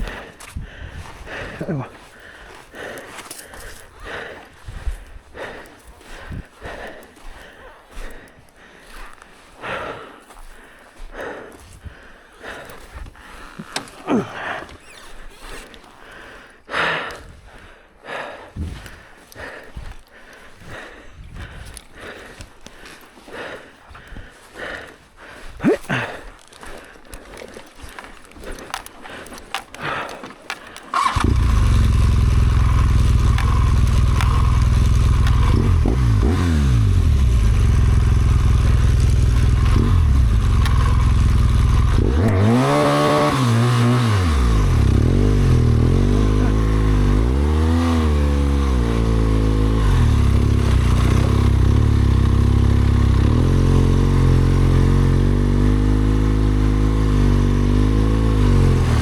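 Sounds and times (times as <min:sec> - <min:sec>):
motorcycle engine revving: 0:30.9 - 0:59.0.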